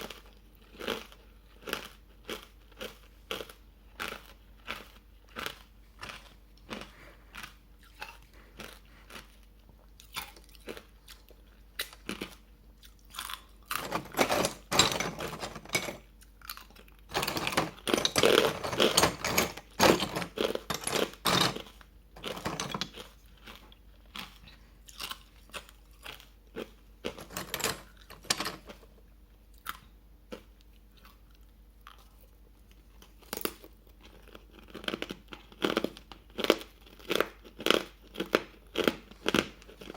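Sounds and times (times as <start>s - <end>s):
ice being chewed: 0.0s - 13.9s, 29.6s - 39.9s.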